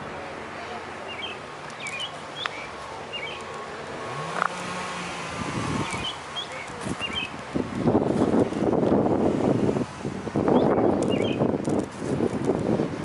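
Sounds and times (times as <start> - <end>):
distant traffic: 0.0 - 13.0
passing vehicle hum: 0.0 - 13.0
bird chirps: 1.1 - 3.5, 5.8 - 7.3, 10.5 - 11.5.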